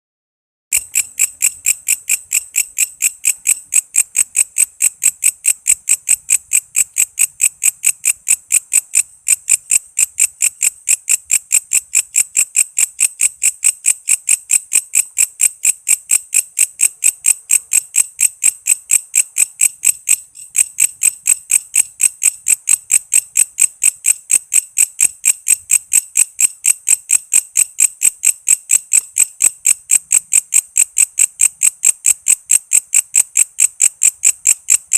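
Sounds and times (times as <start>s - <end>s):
katydid chirping: 0.7s - 34.9s.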